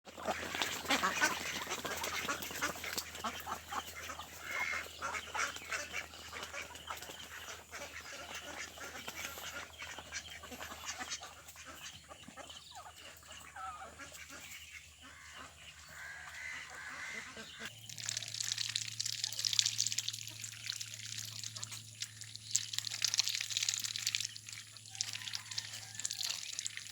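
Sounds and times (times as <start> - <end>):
ducks quacking: 0.1 - 17.7.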